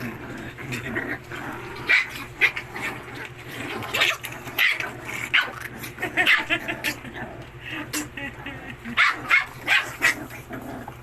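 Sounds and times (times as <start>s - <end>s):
steady low hum: 0.0s - 11.0s
puppy yapping: 8.9s - 10.3s.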